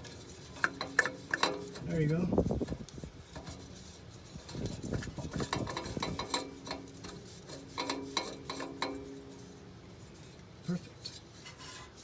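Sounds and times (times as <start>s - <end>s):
metal clicks and scrapes: 0.0s - 9.6s.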